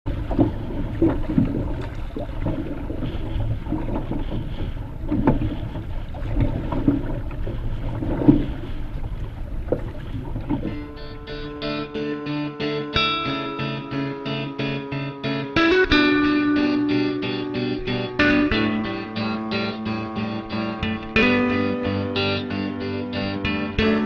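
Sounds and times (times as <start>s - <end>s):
wind buffeting microphone: 0.1s - 11.7s
water splashing against canoe: 0.1s - 11.9s.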